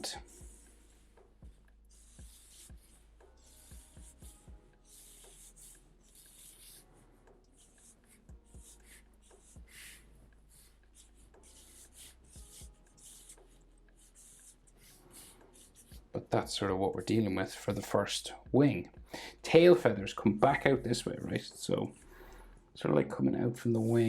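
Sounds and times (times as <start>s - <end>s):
pencil scratching on paper: 0.0s - 16.2s, 23.6s - 24.0s.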